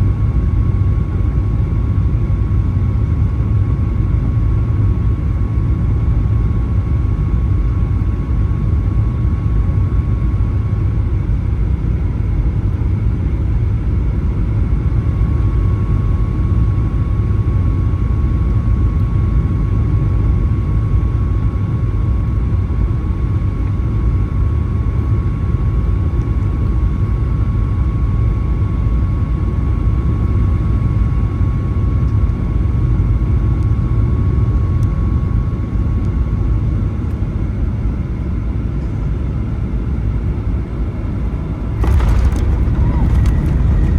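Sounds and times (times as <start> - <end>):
airplane cabin engine rumble: 38.8 - 43.9.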